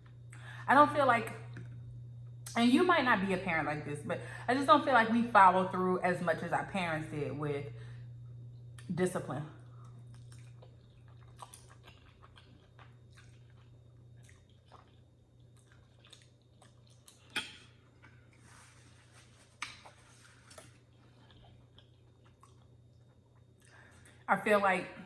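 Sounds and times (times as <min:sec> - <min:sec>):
low hum: 0:00.0 - 0:25.0
person chewing noodles: 0:09.7 - 0:18.7, 0:19.3 - 0:24.2.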